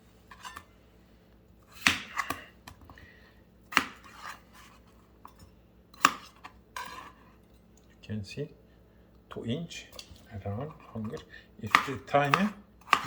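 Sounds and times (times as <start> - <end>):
knife chopping on cutting board: 1.7 - 2.5, 3.7 - 4.7, 6.0 - 7.0, 10.6 - 13.0.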